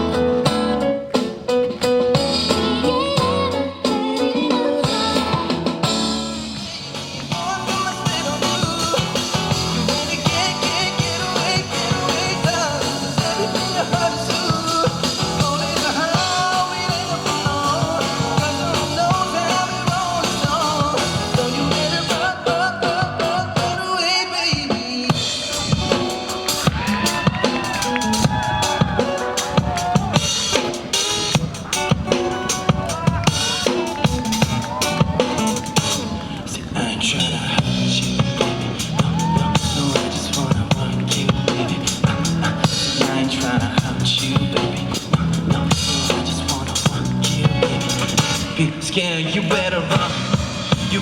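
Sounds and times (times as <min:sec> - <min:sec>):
live band instrumental: 0:00.0 - 0:36.7, 0:37.6 - 0:51.0.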